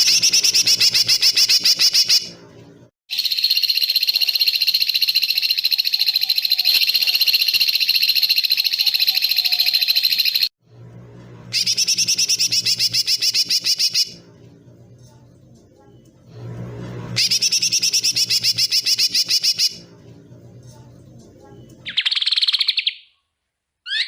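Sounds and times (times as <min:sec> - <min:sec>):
low hum: 0:10.6 - 0:13.3, 0:14.1 - 0:18.9.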